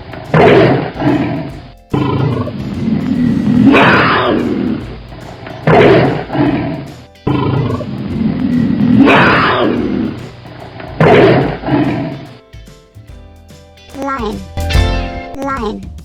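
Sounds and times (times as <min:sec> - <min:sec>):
tiger roaring: 0:00.0 - 0:12.4
cheerful background music: 0:00.0 - 0:16.0.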